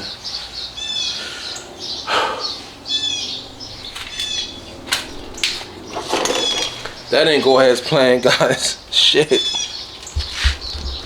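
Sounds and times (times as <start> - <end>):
small birds chirping: 0.0 - 11.0
brief scuffing noise: 10.2 - 11.0.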